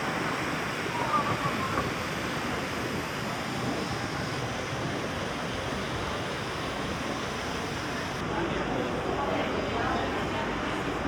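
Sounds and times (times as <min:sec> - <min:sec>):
sea surf rushing: 0:00.0 - 0:08.2.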